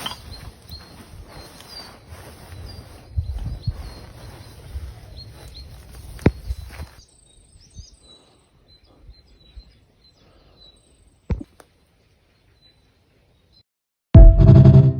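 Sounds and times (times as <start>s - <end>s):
birds chirping: 0.0s - 11.5s.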